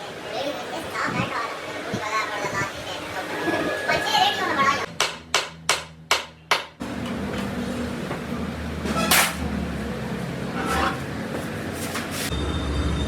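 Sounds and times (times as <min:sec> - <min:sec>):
low mechanical hum: 0:03.7 - 0:13.0.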